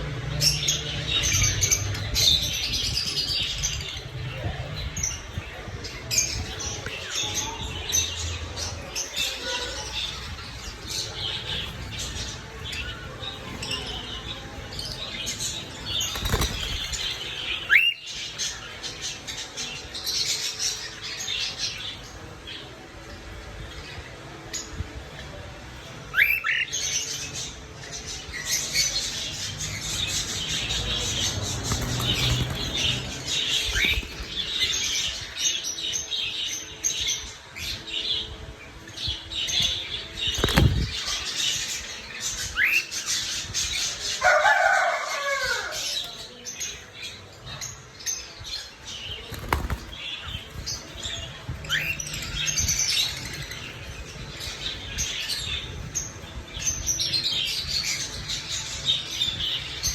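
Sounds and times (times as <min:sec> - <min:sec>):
bird wings flapping: 0:16.0 - 0:17.2, 0:31.5 - 0:34.5, 0:40.4 - 0:41.0, 0:49.3 - 0:50.6.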